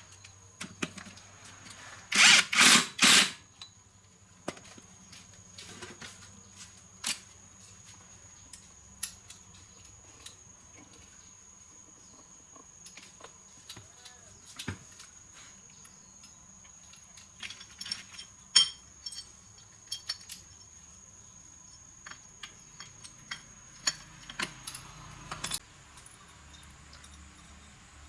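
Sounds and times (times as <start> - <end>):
metal parts and tools clinking: 16.2 - 27.7.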